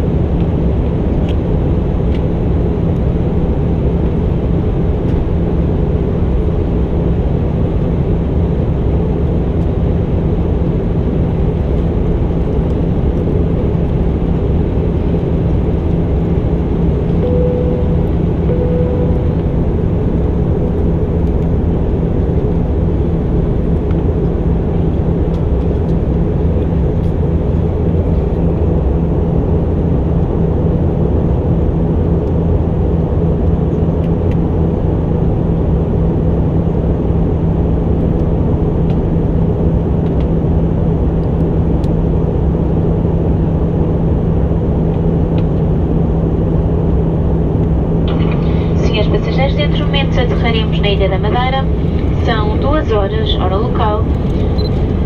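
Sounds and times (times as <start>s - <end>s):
constant low hum: 0.0s - 55.0s
jet engines: 0.0s - 55.0s
rush of air in aircraft cabin: 42.1s - 55.0s.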